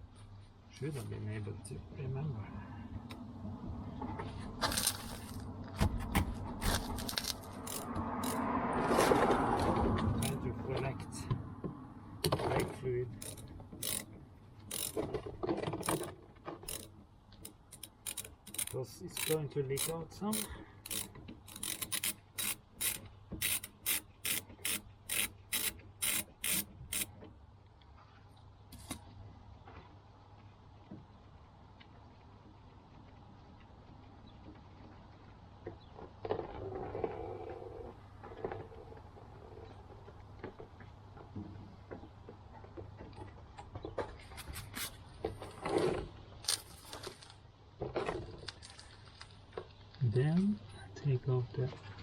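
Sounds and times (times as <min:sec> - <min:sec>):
ratchet wrench rasping: 0:06.6 - 0:08.4, 0:10.2 - 0:10.4, 0:13.1 - 0:15.1, 0:15.8 - 0:27.1
metal hand tools clinking: 0:07.0 - 0:08.4, 0:17.7 - 0:27.0.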